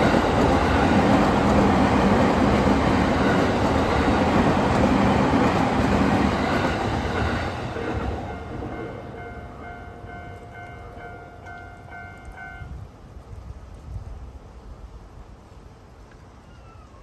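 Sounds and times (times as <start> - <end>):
train passing: 0.0 - 13.1
crossing warning bell ringing: 6.3 - 12.7.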